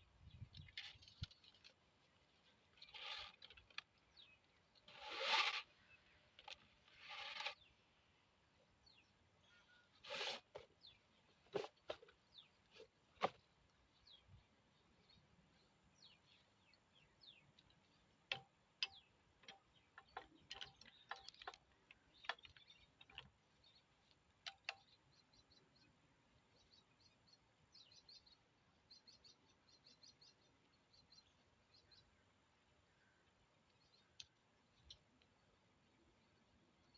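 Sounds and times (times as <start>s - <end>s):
faint high bird chirps: 8.8s - 10.0s.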